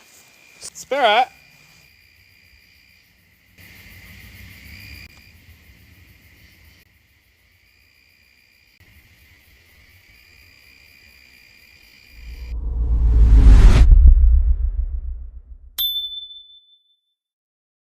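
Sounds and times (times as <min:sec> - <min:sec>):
crickets chirping: 0:00.0 - 0:12.1
faint low rumble: 0:12.2 - 0:15.8.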